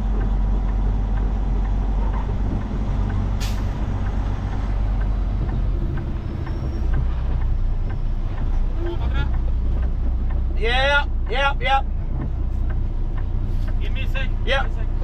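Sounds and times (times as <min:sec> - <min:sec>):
diesel truck engine running: 0:00.0 - 0:15.0
air brake hiss: 0:03.4 - 0:03.8.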